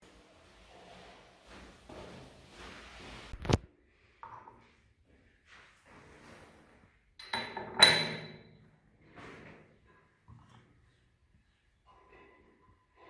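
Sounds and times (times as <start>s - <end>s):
metallic clink with ring: 7.2s - 8.4s.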